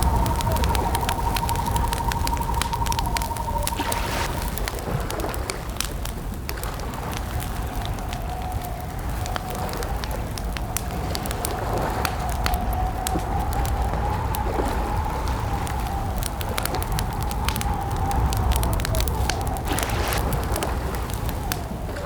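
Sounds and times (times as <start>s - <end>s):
slowly wavering tone: 0.0s - 4.6s
campfire crackling: 0.0s - 22.0s.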